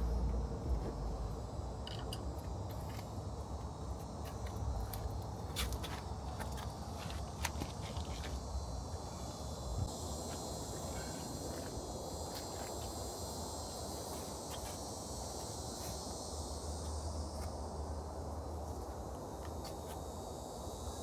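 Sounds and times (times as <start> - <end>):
low hum: 0.0 - 12.3
insects trilling: 0.0 - 21.0.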